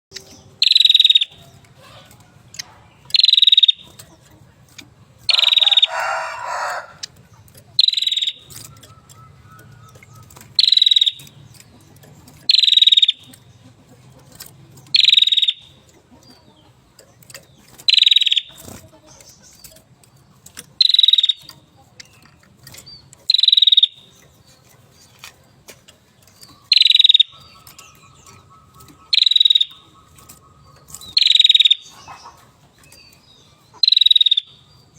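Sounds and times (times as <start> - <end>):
bird calling high sharp notes: 0.1 - 2.1, 3.1 - 4.0, 5.3 - 7.1, 7.8 - 11.4, 12.4 - 13.4, 14.9 - 15.8, 17.9 - 18.8, 20.8 - 21.5, 23.2 - 24.2, 26.4 - 32.3, 33.7 - 34.7
bird rasping call: 0.6 - 3.9, 5.3 - 7.1, 7.8 - 11.5, 12.5 - 13.8, 14.9 - 15.8, 20.8 - 21.6, 23.2 - 24.2, 26.5 - 34.7.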